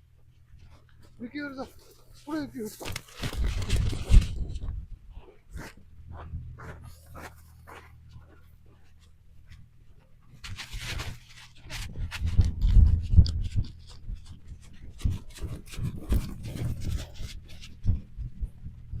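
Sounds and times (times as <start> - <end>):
rustling and scuffing: 0.3 - 12.9.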